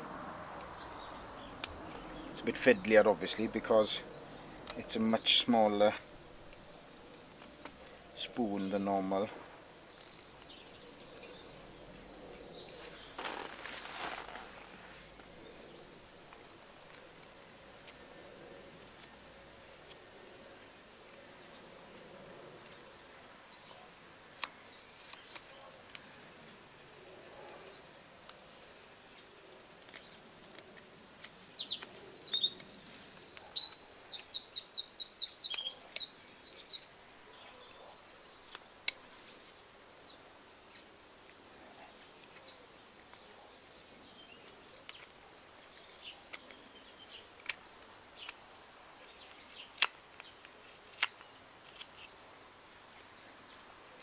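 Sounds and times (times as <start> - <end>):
songbird singing and trilling: 0.0 - 20.2, 21.1 - 54.0
carving knife scraping wood: 49.1 - 52.2.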